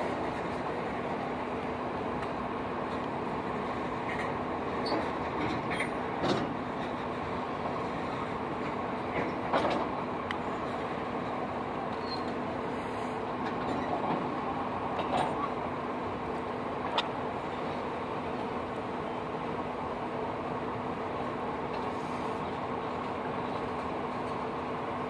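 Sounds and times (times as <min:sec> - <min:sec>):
freight train rumbling past: 0:00.0 - 0:25.0
train clanks: 0:00.0 - 0:25.0
wheel squeals: 0:11.9 - 0:12.4.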